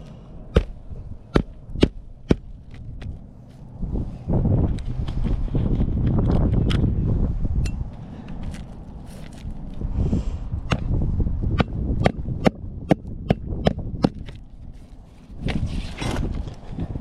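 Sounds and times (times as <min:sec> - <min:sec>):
low rumble: 0:00.0 - 0:17.0
short rustling: 0:08.4 - 0:09.8.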